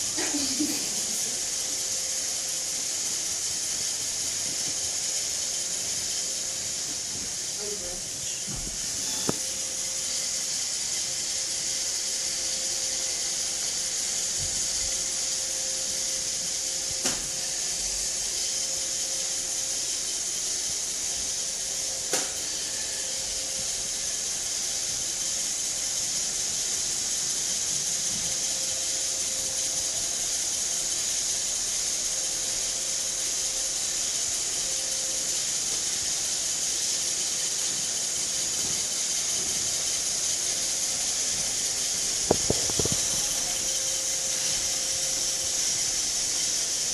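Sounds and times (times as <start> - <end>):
robot vacuum whirring: 0.0 - 46.9.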